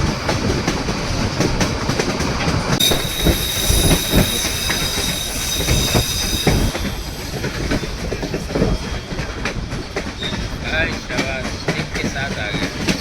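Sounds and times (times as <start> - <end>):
rail clicks and knocks: 0.0 - 13.0
train rumbling along track: 0.0 - 13.0
high wheel squeal: 2.8 - 8.2.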